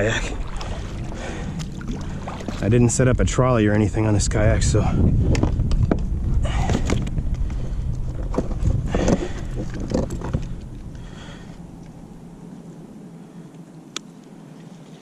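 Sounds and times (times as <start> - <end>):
low rumble: 0.0 - 13.5.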